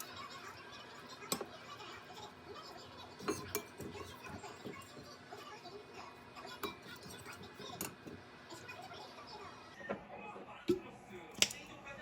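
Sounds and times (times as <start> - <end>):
cutlery clinking against dishes: 3.2 - 5.0, 6.6 - 8.2, 11.4 - 11.7.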